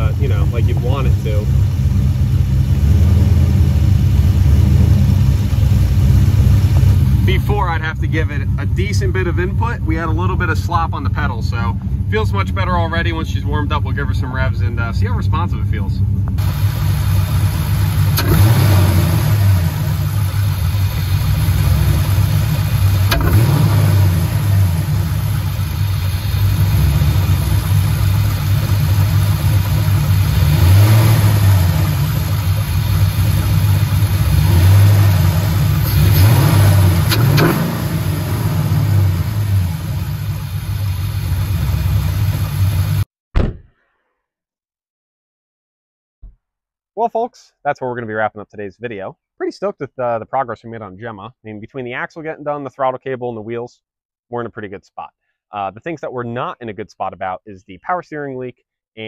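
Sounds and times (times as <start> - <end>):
car engine idling and revving: 0.0 - 43.1.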